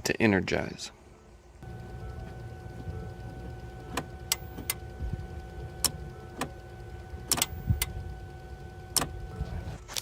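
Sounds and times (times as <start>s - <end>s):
faint high hum: 0.5s - 10.0s
sharp irregular clicks and knocks: 1.6s - 9.3s.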